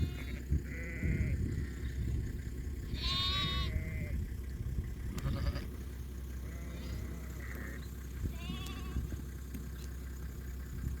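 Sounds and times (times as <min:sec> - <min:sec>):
sheep bleating: 0:00.0 - 0:02.0, 0:02.9 - 0:04.2, 0:05.1 - 0:05.8, 0:06.4 - 0:09.2
steady low rumble: 0:00.0 - 0:11.0.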